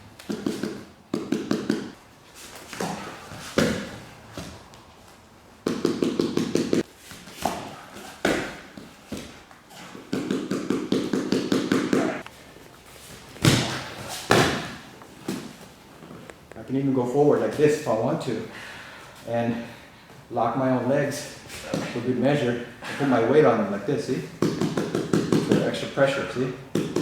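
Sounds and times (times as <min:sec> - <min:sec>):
rapid hand taps: 0:00.2 - 0:02.0, 0:05.6 - 0:06.9, 0:10.0 - 0:12.2, 0:24.4 - 0:25.7, 0:26.7 - 0:27.0
bodies thumping on mat: 0:13.0 - 0:16.2.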